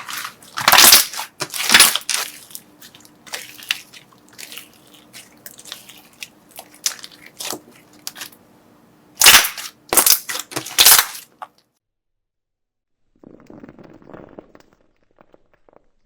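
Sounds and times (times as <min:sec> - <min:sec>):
slime crackling: 0:00.0 - 0:08.4, 0:09.2 - 0:11.5
slime crunching loudly: 0:00.0 - 0:08.4, 0:09.2 - 0:11.5.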